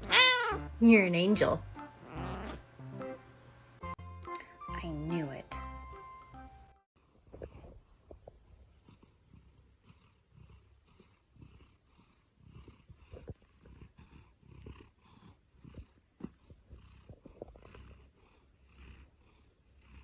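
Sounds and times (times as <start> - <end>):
cat purring: 1.4 - 2.7, 7.0 - 20.0.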